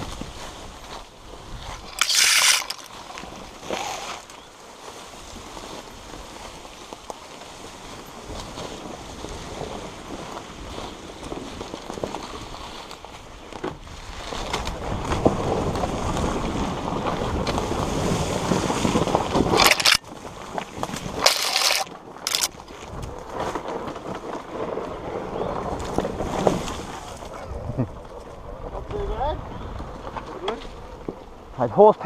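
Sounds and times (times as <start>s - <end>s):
wind rushing over microphone: 0.0s - 4.3s, 13.3s - 21.3s, 22.4s - 31.6s
dirt bike engine: 1.5s - 4.4s, 14.8s - 20.1s, 21.0s - 22.6s.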